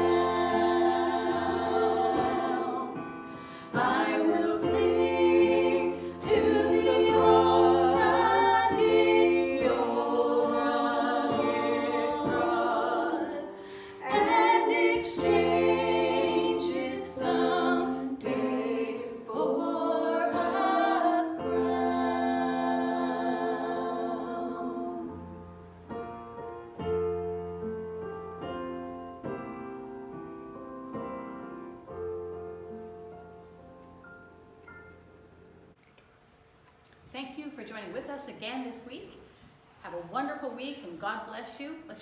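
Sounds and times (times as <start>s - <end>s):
choir singing in harmony: 0.0s - 25.6s.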